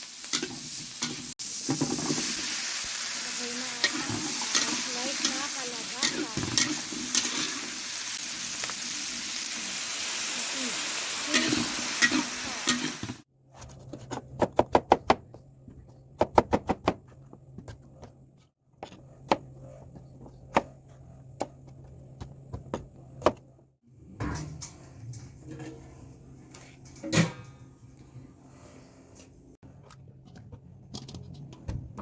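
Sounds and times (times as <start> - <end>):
vegetables sizzling in a pan: 0.0 - 13.2.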